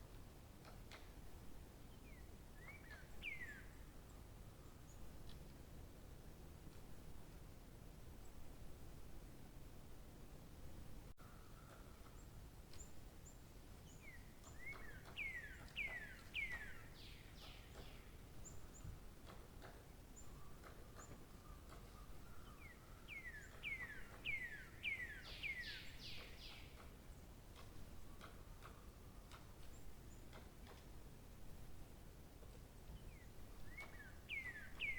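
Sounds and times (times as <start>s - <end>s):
low background hiss: 0.0s - 34.9s
songbird whistled song: 2.1s - 3.7s, 13.9s - 18.7s, 20.2s - 26.8s, 32.9s - 34.9s.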